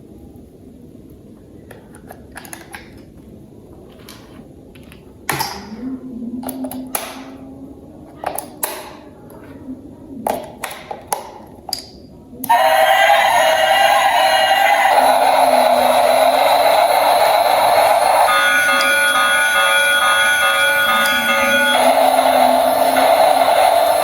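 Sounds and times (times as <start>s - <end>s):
plastic toy parts clicking: 1.7s - 3.0s.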